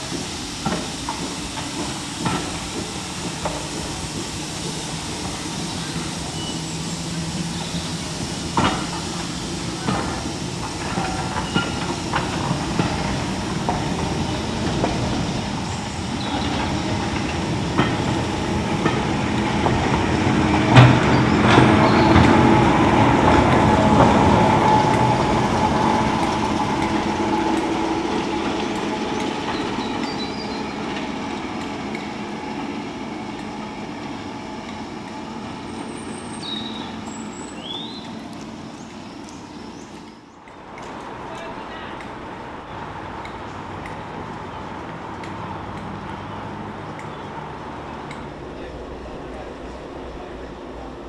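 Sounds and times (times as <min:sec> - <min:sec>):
train wheels clicking over rail joints: 0:00.0 - 0:51.0
birds chirping: 0:01.3 - 0:18.9, 0:23.2 - 0:32.2, 0:35.8 - 0:40.5.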